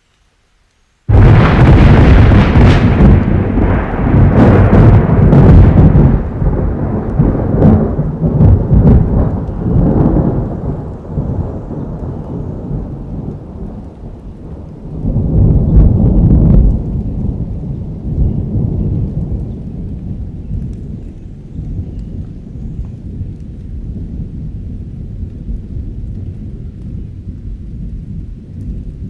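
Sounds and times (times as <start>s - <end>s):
steady rain: 0.0s - 29.0s
thunder rumbling: 1.1s - 29.0s.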